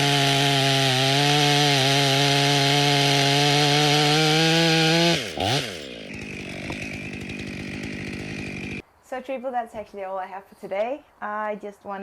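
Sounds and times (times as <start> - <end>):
chainsaw running at high revs: 0.0 - 8.8.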